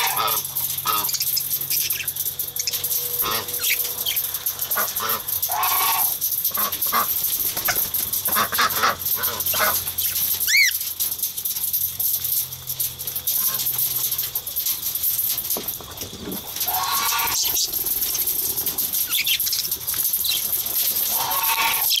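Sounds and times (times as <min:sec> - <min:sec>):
budgerigars chirping and chattering: 0:00.0 - 0:10.8, 0:16.6 - 0:22.0.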